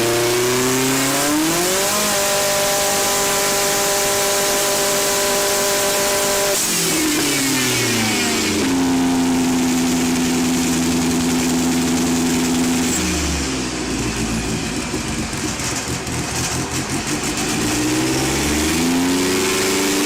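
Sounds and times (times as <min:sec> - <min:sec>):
car engine revving and idling: 0:00.0 - 0:20.0.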